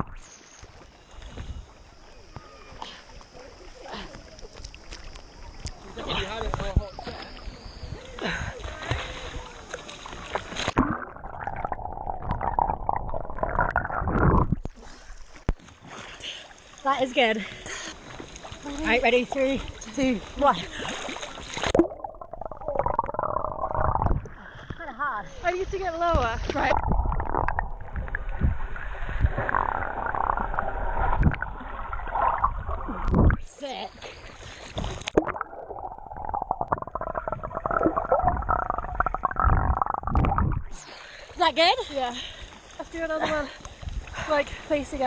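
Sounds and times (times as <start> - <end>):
underwater bubbling and rushing water: 8.6 - 15.8, 18.0 - 41.4
splash into water: 19.4 - 22.0.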